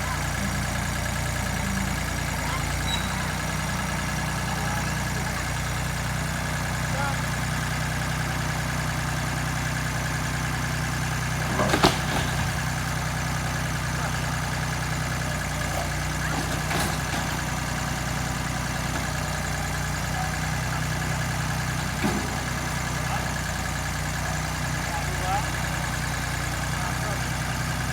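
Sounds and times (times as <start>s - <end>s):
tractor engine running: 0.0s - 27.9s
sharp knocks: 11.4s - 12.9s.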